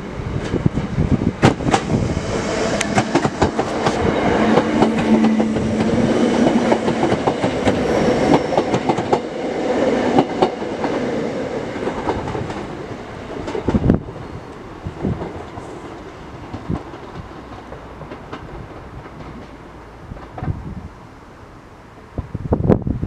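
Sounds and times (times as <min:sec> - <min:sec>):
electric train hum: 0:00.0 - 0:23.0
train wheels clacking over joints: 0:02.6 - 0:09.4, 0:15.0 - 0:20.6.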